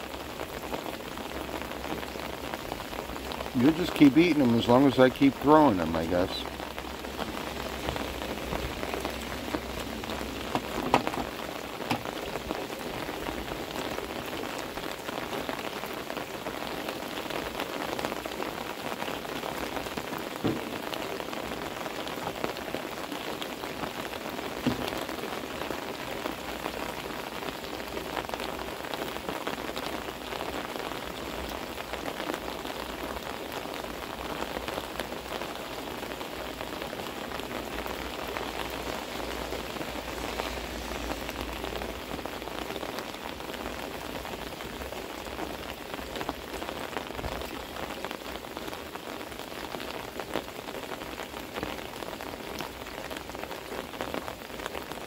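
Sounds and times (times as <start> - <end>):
heavy rain on an umbrella: 0.0 - 55.0
rain on a wet wooden deck: 0.0 - 55.0.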